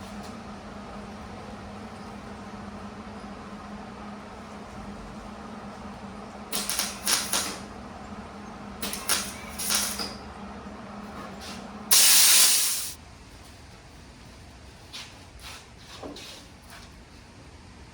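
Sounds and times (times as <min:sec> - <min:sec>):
steady low hum: 0:00.0 - 0:15.3
welding crackling bursts: 0:06.5 - 0:07.6, 0:08.8 - 0:10.0
loud steady hiss: 0:11.9 - 0:13.0.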